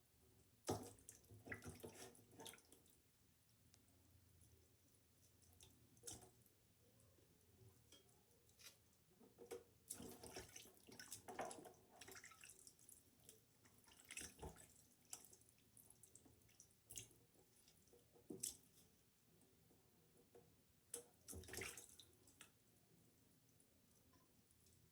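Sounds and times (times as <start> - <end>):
water splashing and dripping: 9.4 - 18.8, 20.9 - 22.6.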